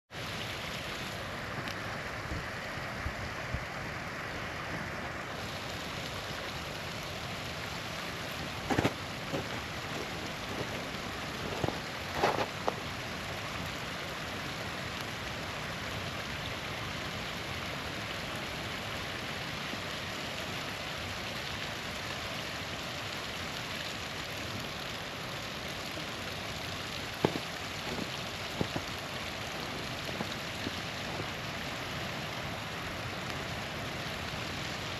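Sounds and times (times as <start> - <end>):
small waterfall rushing: 0.1 - 34.9
campfire popping and crackling: 0.2 - 2.7, 3.8 - 34.9.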